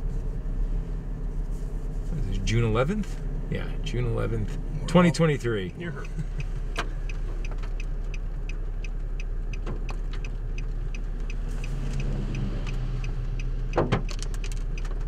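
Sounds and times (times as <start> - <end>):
steady low hum: 0.0 - 13.8
hailstones clicking on a vehicle: 13.4 - 15.0.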